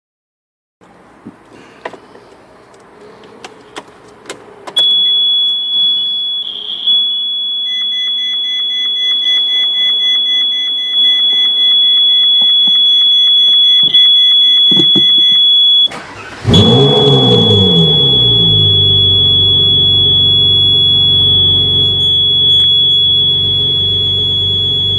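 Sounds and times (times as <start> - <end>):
clicks: 7.8 - 16.0
high-pitched electronic buzz: 16.5 - 24.9
low sound rising in pitch: 16.5 - 24.9.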